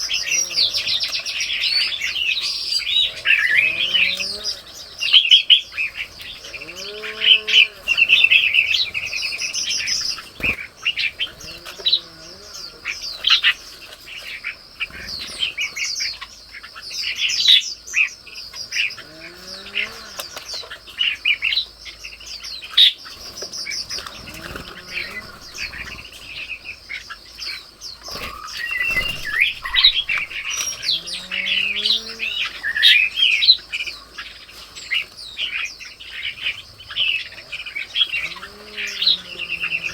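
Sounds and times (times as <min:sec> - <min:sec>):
small birds chirping: 0:00.0 - 0:39.9
low arched bird call: 0:02.6 - 0:13.3, 0:23.8 - 0:27.0, 0:28.1 - 0:33.2, 0:37.3 - 0:39.9.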